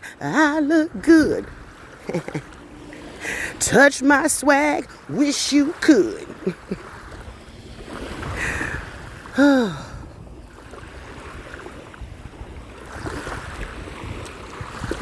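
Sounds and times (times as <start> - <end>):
ocean surf: 0.0 - 15.0
wind buffeting microphone: 6.3 - 15.0.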